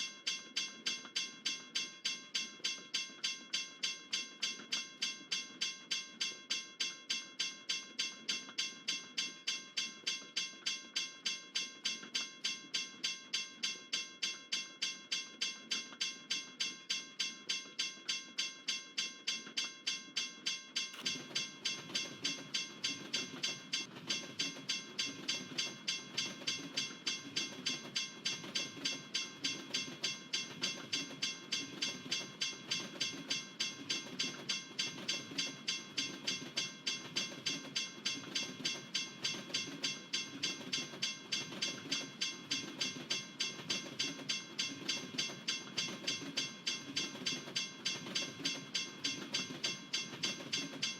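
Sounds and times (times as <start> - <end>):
freight train wheels clacking: 20.9 - 50.9.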